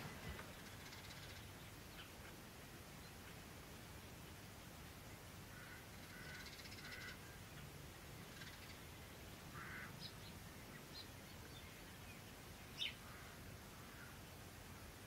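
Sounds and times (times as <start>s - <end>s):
harsh low bird calls: 5.5s - 7.7s.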